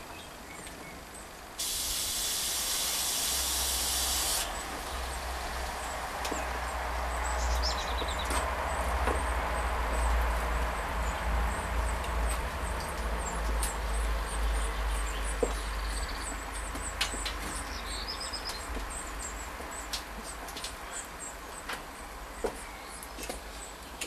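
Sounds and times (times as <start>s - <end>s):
small birds chirping: 0.0s - 1.4s, 3.4s - 24.0s
hiss: 1.6s - 6.0s.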